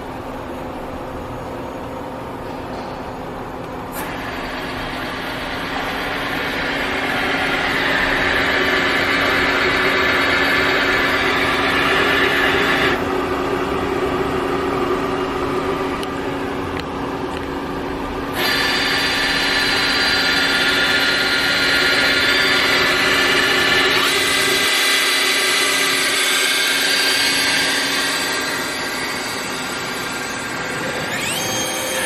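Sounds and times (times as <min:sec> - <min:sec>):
rushing machining noise: 0:04.0 - 0:13.0, 0:18.3 - 0:32.0
lathe machine hum: 0:04.0 - 0:32.0.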